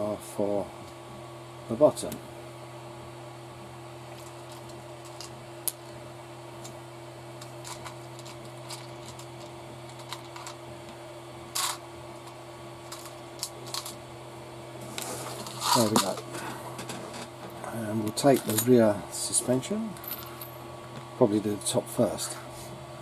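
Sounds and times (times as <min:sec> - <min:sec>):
steady low hum: 0:00.0 - 0:23.0
parts rattling: 0:07.4 - 0:10.6, 0:11.6 - 0:14.0, 0:15.0 - 0:17.6
small parts clicking and tapping: 0:07.4 - 0:10.6, 0:11.6 - 0:14.0.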